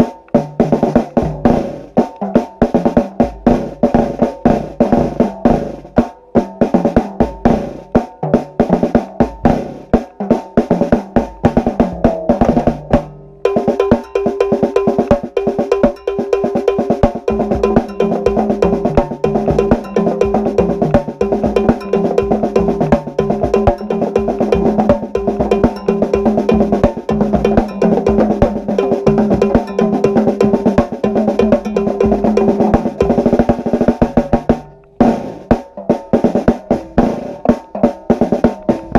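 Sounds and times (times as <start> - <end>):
snare and bass drums playing: 0.0 - 38.9.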